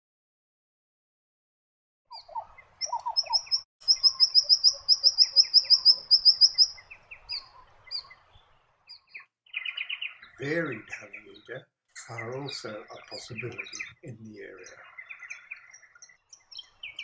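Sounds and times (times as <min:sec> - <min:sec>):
bird singing high notes: 0:02.2 - 0:08.2, 0:12.0 - 0:17.0.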